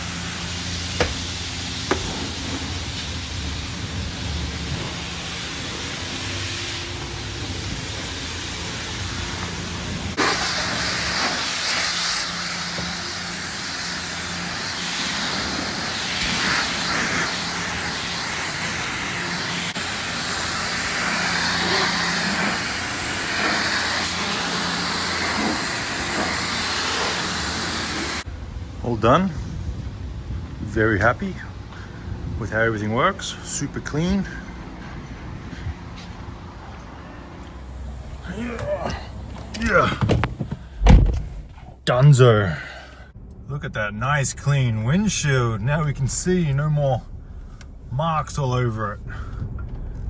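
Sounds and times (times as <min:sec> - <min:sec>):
pressure washer spraying water: 0:00.0 - 0:28.3
steady low hum: 0:00.0 - 0:50.0.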